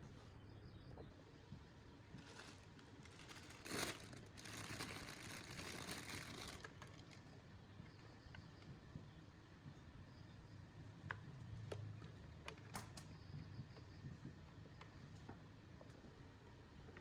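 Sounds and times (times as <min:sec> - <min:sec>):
rustling and crinkling: 0:02.0 - 0:08.8.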